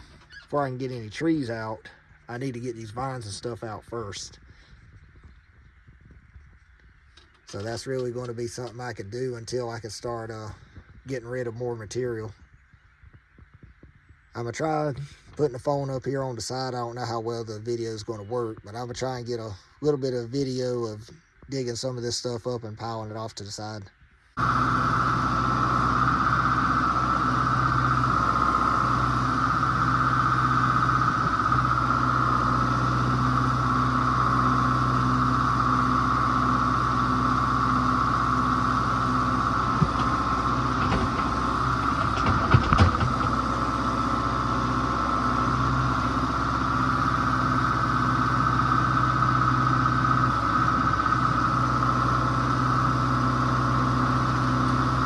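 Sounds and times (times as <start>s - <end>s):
tractor engine under load: 0.0s - 20.9s, 24.4s - 55.0s
loader bucket digging: 24.4s - 45.9s.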